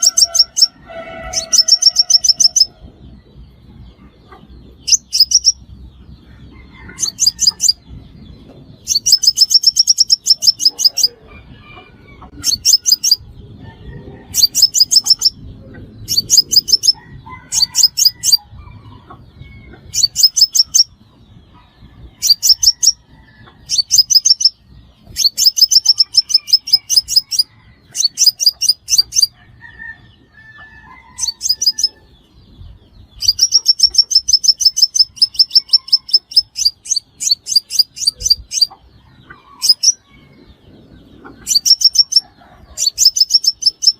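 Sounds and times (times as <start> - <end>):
bird chipping notes: 0.0 - 2.8, 23.6 - 29.4.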